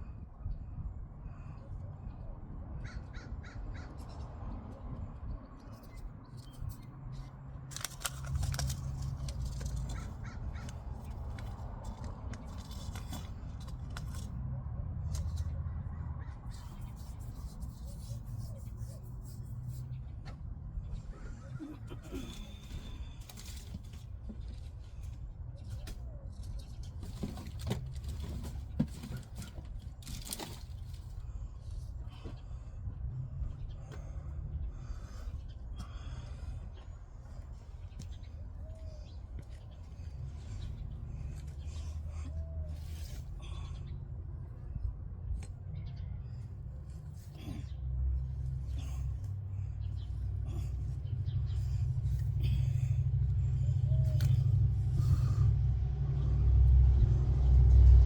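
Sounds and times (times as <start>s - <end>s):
steady low rumble: 0.0s - 58.0s
rustling and scraping in garden: 5.6s - 20.5s, 21.2s - 32.3s, 37.2s - 43.7s, 46.2s - 55.5s
short clicks and rustles: 7.7s - 14.3s
low rumble: 48.2s - 58.0s.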